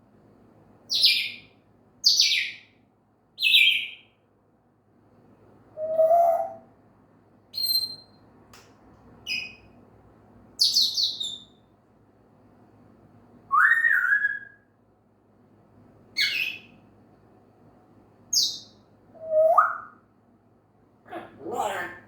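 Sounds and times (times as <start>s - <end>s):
parrot calling and whistling: 5.8s - 6.6s, 13.5s - 14.6s, 16.2s - 16.7s, 19.2s - 20.0s.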